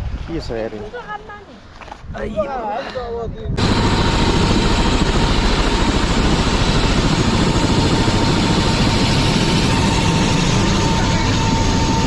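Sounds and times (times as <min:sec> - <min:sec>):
helicopter engine and rotor: 0:03.6 - 0:12.0.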